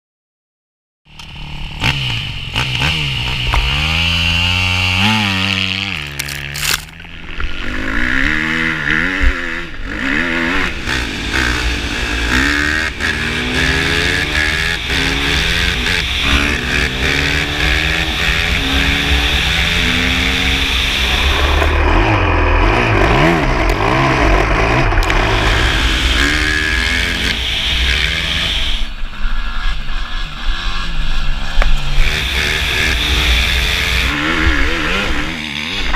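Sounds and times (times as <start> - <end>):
motocross bike engine revving: 1.1 - 35.9.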